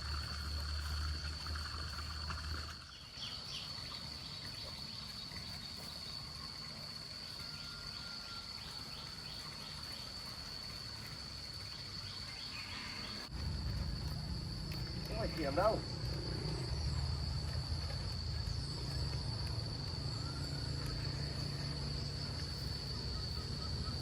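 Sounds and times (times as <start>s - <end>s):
faint insect chirps: 0.0s - 24.0s
low hum: 13.3s - 24.0s.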